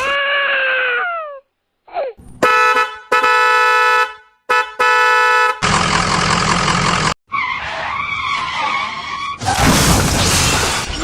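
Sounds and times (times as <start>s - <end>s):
car engine and tyre noise: 2.2s - 11.0s
tyre skid squeal: 7.3s - 9.7s.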